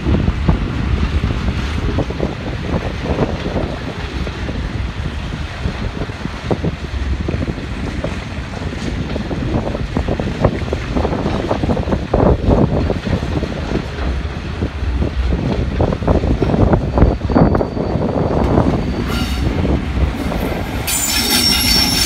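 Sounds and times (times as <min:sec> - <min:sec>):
diesel train rumble: 0:00.0 - 0:22.0
wind buffeting microphone: 0:00.0 - 0:22.0.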